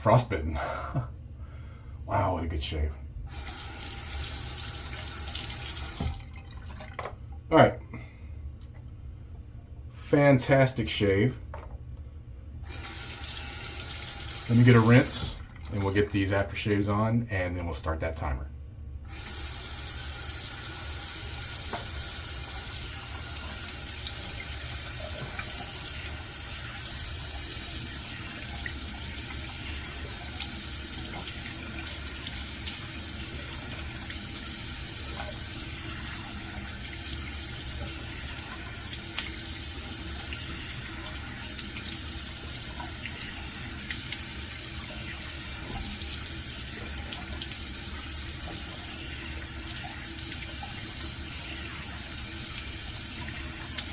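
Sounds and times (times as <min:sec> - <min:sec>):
tap running into a sink: 0:04.8 - 0:07.2, 0:19.1 - 0:53.9
water splashing: 0:04.9 - 0:07.1.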